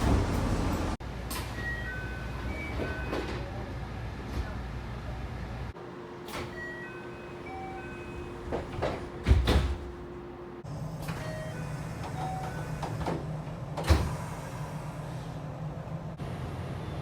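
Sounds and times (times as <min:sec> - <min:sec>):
train doors shutting thud: 0:00.0 - 0:01.6, 0:06.2 - 0:06.9, 0:07.6 - 0:10.1, 0:11.0 - 0:14.6.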